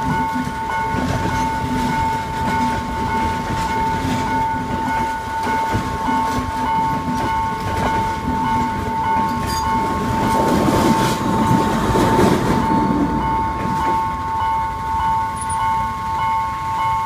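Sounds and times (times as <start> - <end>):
crossing warning alarm ringing: 0.0 - 17.0
train wheels on rails: 0.0 - 17.0.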